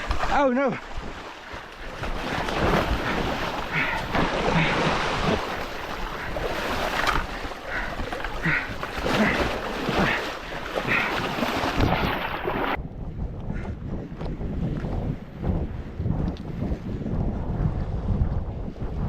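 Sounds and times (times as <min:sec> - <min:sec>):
surf splashing against rocks: 0:00.0 - 0:12.8
wind buffeting microphone: 0:11.0 - 0:19.0.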